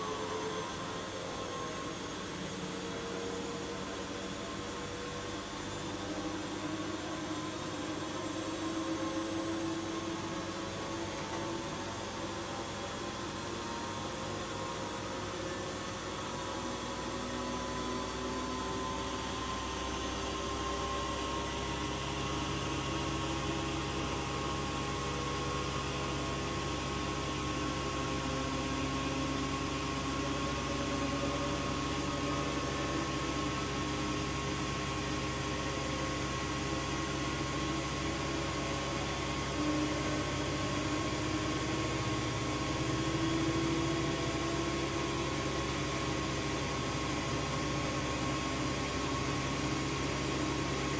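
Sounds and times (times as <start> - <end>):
washing machine running: 0.0 - 50.9.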